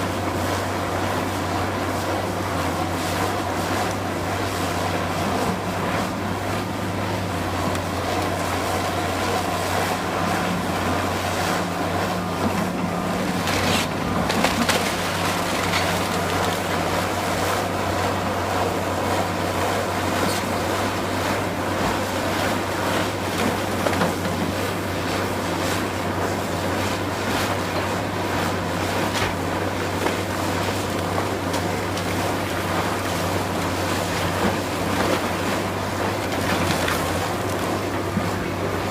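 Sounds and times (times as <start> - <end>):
heavy machinery diesel engine: 0.0 - 38.9
debris crunching: 13.3 - 17.2.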